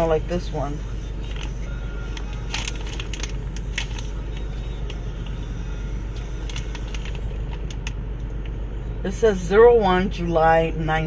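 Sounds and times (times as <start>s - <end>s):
vehicle interior rumble: 0.0s - 11.0s
candy package rustling: 2.4s - 4.5s, 6.2s - 7.9s.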